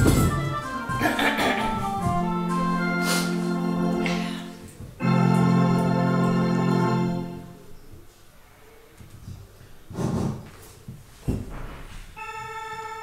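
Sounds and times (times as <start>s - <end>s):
electronic organ playing held chords: 0.0s - 7.7s.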